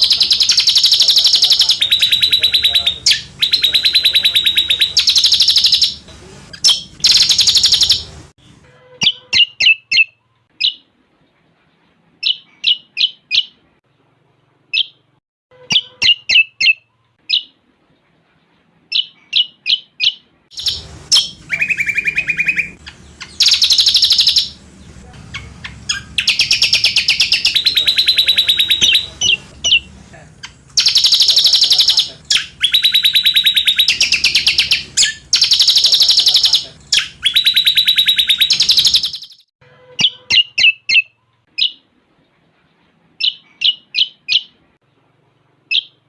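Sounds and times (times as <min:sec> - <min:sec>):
bird short sharp chirps: 0:15.6 - 0:17.5.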